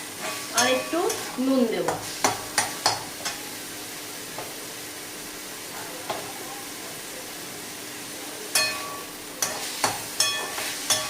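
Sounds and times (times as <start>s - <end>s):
meat sizzling in a pan: 0.0s - 11.0s
spatula knocking against pan: 1.8s - 3.4s.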